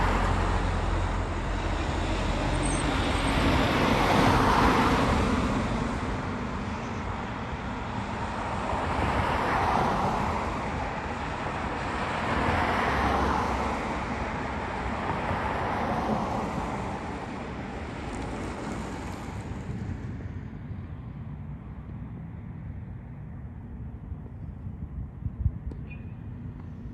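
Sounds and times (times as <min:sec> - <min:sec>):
vehicles passing: 0:00.0 - 0:26.9.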